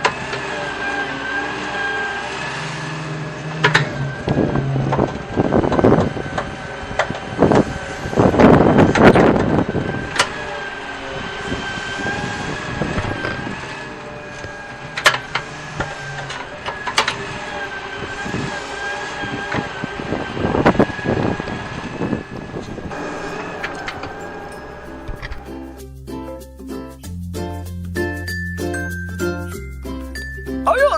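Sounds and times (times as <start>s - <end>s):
small electric motor whine: 8.9s - 25.7s
sharp clicks: 9.4s - 25.5s.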